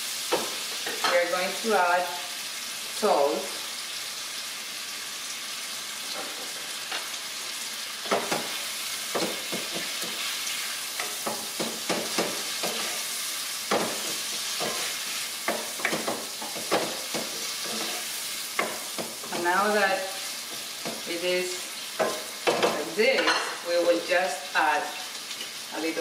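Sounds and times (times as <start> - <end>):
shrimp sizzling in a frying pan: 0.0 - 26.0
utensil scraping a pan: 8.1 - 19.6.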